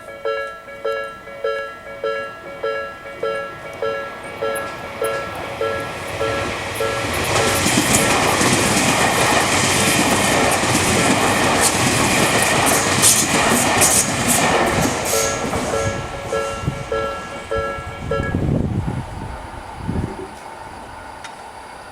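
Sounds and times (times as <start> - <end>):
level crossing bell ringing: 0.0 - 7.6, 15.1 - 18.4
train wheels clacking: 0.0 - 18.5.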